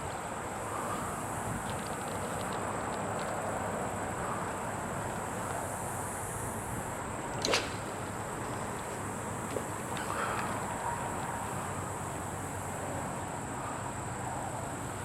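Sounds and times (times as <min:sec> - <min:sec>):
fishing rod cast swish: 0:07.4 - 0:08.0.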